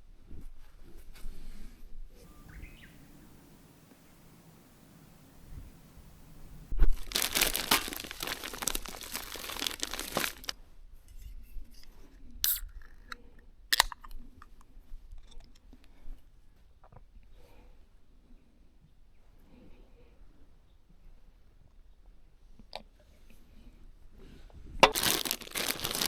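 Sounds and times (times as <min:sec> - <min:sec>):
packaging crinkling and tearing: 0:06.8 - 0:10.6, 0:24.8 - 0:26.0.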